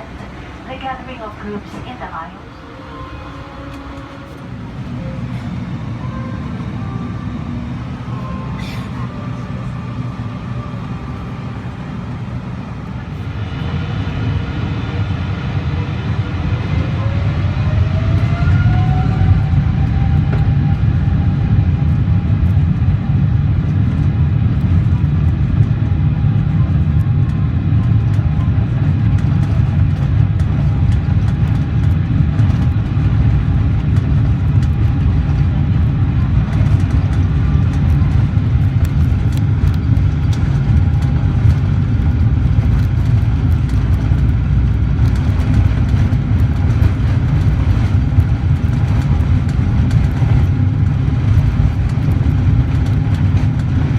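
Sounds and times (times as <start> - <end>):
jet engines rumbling: 0.0 - 53.9.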